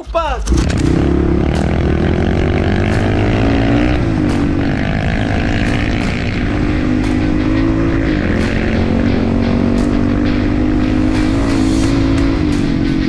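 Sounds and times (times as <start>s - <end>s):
motorcycle engine running: 0.4s - 13.0s.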